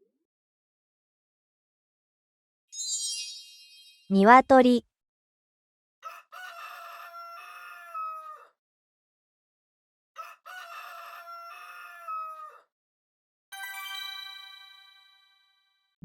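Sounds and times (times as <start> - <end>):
rooster crowing: 6.0 - 8.5, 10.2 - 12.7.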